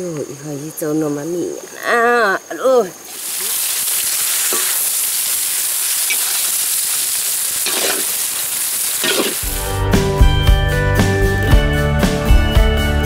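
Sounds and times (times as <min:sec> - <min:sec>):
food sizzling in a wok: 0:03.1 - 0:09.8
metal spatula scraping pan: 0:07.6 - 0:08.2, 0:09.0 - 0:09.4.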